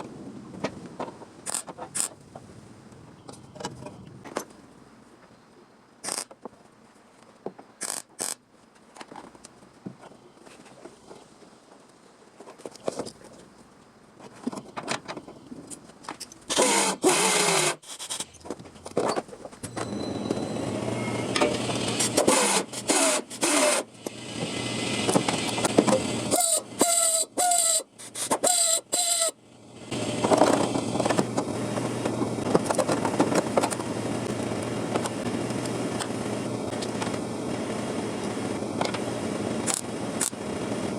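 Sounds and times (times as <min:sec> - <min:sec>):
electric power tool on sheet steel: 0:16.5 - 0:17.8, 0:20.6 - 0:27.7.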